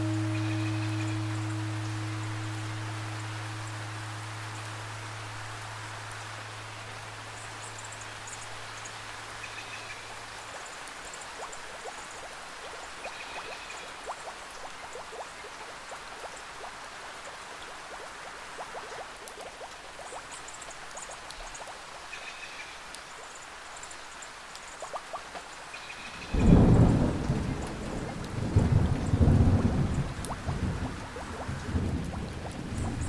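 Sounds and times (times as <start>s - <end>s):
low held instrument tone: 0.0s - 6.0s
rain with water drops plinking: 0.0s - 33.0s.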